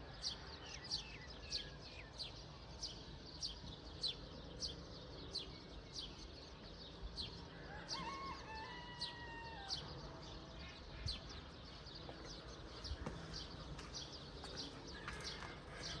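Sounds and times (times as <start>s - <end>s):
birds chirping: 9.7s - 16.0s.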